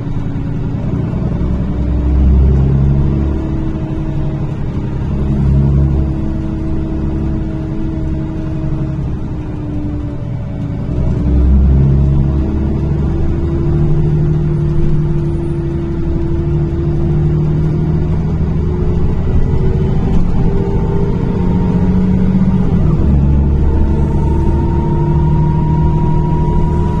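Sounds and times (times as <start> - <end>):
bus engine humming: 0.0 - 27.0
rising whine: 10.9 - 27.0.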